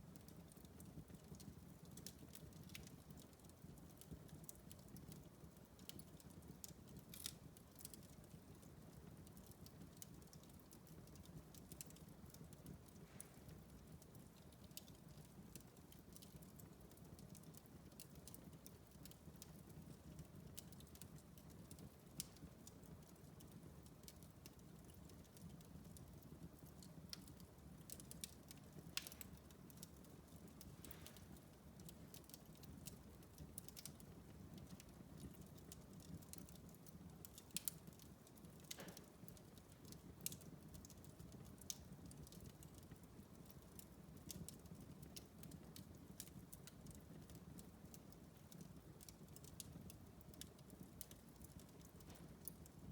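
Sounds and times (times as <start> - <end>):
wood fire crackling: 0.0 - 52.9.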